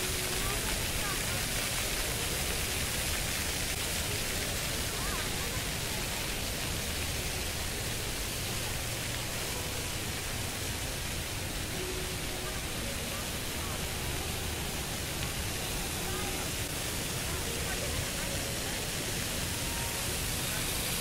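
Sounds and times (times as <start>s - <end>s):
fountain water jets splashing: 0.0s - 21.0s.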